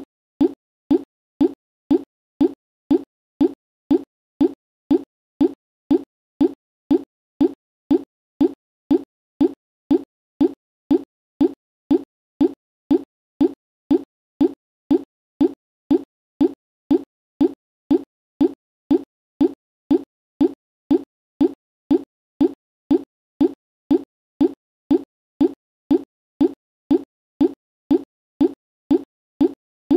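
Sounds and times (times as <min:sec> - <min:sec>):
low electronic plop blip: 0:00.0 - 0:29.6.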